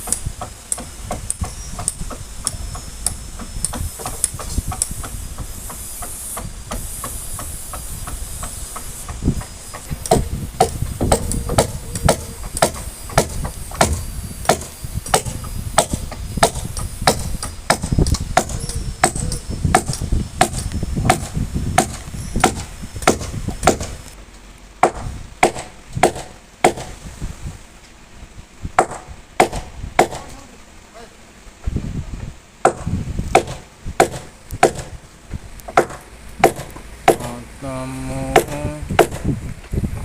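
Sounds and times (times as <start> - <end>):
hammer blows on wood: 0.0 - 24.0, 24.8 - 27.3, 28.8 - 30.4, 32.6 - 35.0, 35.7 - 40.0.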